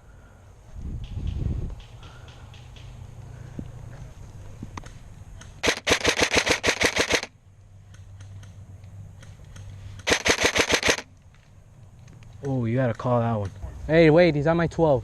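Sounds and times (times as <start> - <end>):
airsoft gun full-auto bursts: 5.6 - 7.3, 10.0 - 11.1.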